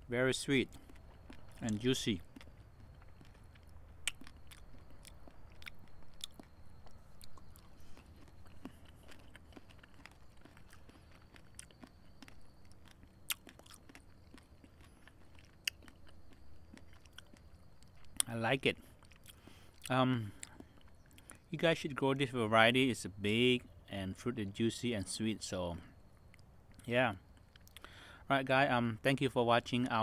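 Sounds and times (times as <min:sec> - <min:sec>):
person chewing wet mouth clicks: 0:00.7 - 0:18.3, 0:19.0 - 0:21.4, 0:26.3 - 0:27.9.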